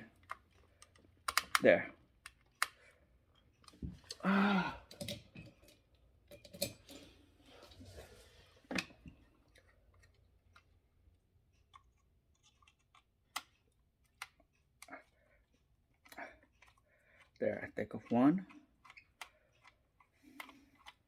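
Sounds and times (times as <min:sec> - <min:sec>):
screwdriver clicks and scrapes: 0:00.2 - 0:01.6, 0:18.8 - 0:21.0.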